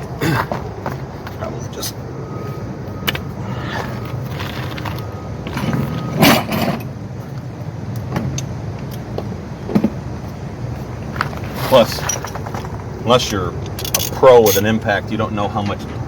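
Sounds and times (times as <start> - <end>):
steady low hum: 0.0 - 16.0
metallic clinks and rattles: 11.7 - 14.6.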